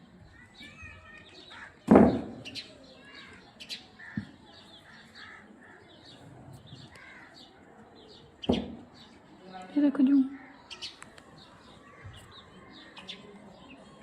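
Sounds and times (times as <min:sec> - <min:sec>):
small birds chirping: 0:00.0 - 0:14.0
loud sharp knock: 0:01.9 - 0:02.5
faint clicks: 0:10.9 - 0:11.3.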